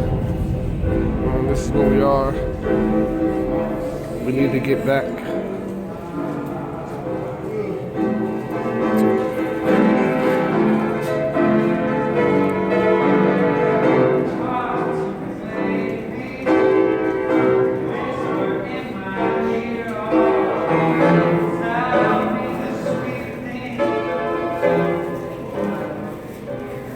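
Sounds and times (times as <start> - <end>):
piano chords: 0.0 - 6.8
man singing: 14.2 - 24.2.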